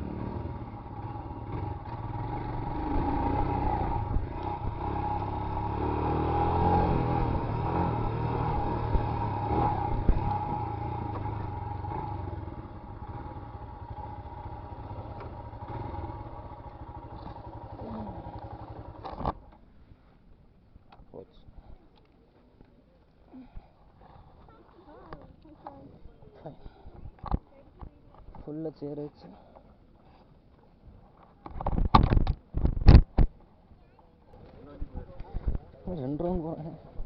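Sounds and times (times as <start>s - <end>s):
motorcycle engine running: 0.0s - 19.6s.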